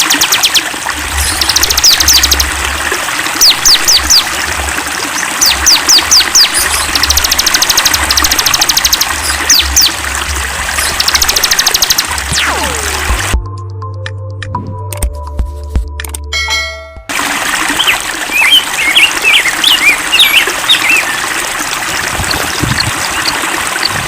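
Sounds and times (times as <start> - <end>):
songbirds trilling and whistling: 0.0 - 2.6, 3.4 - 4.4, 5.0 - 10.0, 10.7 - 12.2, 17.7 - 21.4, 22.2 - 24.0
running stream: 0.0 - 13.4, 16.4 - 24.0.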